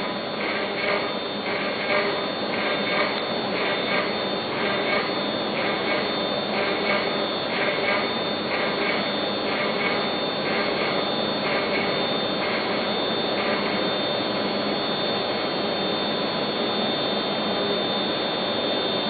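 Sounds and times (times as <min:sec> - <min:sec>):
milling spindle cutting wood: 0:00.4 - 0:13.8.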